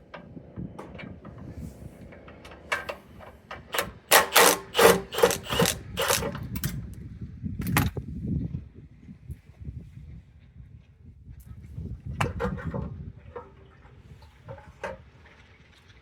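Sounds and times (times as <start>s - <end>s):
ratchet wrench rasping: 3.7s - 6.8s.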